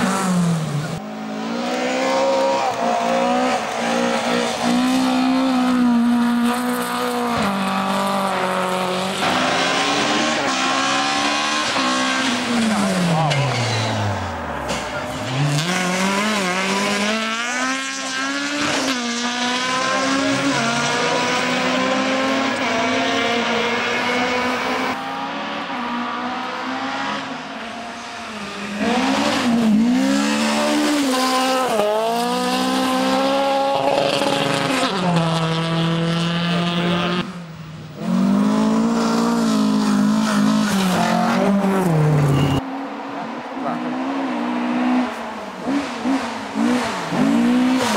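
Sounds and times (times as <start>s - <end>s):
rally car engines revving hard: 0.0s - 47.9s
tyre squeal: 40.3s - 42.7s.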